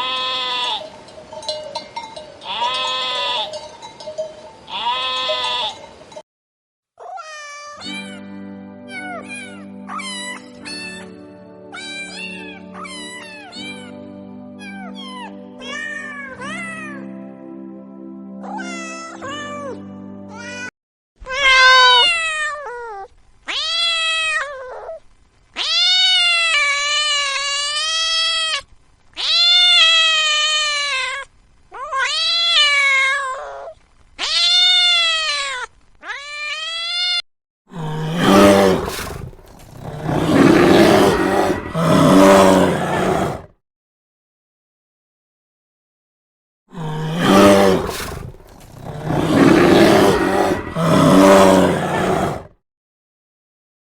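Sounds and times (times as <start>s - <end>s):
rough noisy call: 0.0s - 6.2s, 37.8s - 43.5s, 46.8s - 52.5s
background music: 7.8s - 20.7s
cat meowing: 11.8s - 14.0s, 14.6s - 17.0s, 18.4s - 19.8s, 21.3s - 25.0s, 25.6s - 28.6s, 29.2s - 31.2s, 31.8s - 37.2s.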